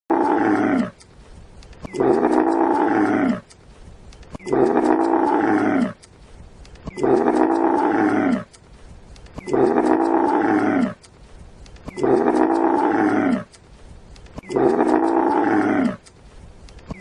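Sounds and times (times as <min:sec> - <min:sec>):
animal call: 0:01.8 - 0:03.4, 0:04.4 - 0:06.0, 0:06.9 - 0:08.5, 0:09.4 - 0:11.0, 0:11.9 - 0:13.5, 0:14.4 - 0:16.0.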